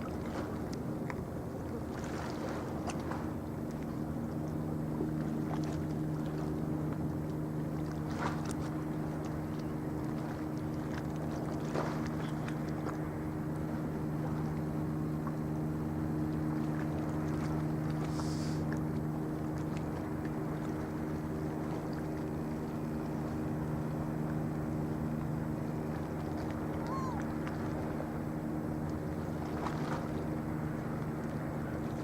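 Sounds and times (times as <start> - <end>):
constant wash of noise: 0.0 - 32.0
ship diesel engine drone: 0.0 - 32.0.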